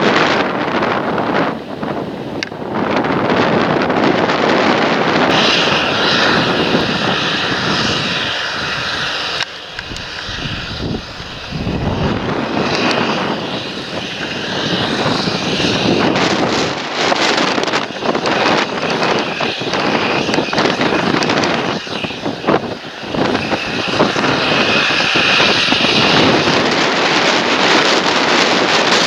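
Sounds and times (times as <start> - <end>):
tractor engine running: 5.3 - 14.4
high hiss: 5.3 - 27.7.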